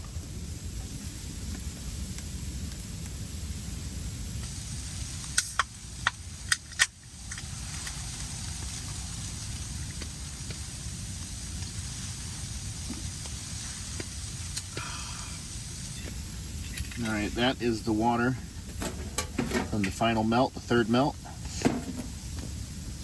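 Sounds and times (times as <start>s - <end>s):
wood stove rumble and hiss: 0.0s - 23.0s
sharp cracks: 5.3s - 8.1s.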